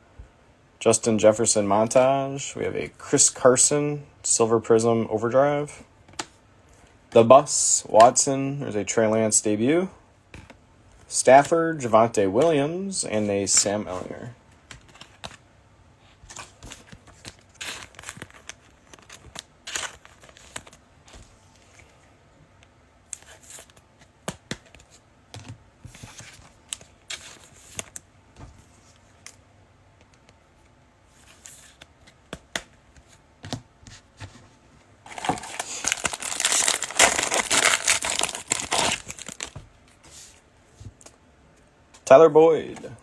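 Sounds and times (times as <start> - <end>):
foil wrapper crinkling and tearing: 35.1 - 39.6
trading cards clicking and rustling: 35.1 - 39.6.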